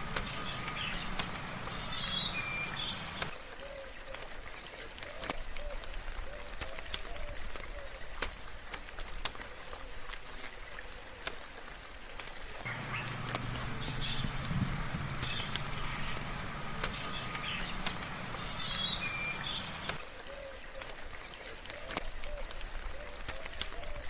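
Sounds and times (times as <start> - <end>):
rain drop ticks: 0.0 - 24.0
rain hiss: 0.0 - 24.0
high bird chirps: 0.2 - 3.3, 12.7 - 20.0
low hum: 12.7 - 20.0.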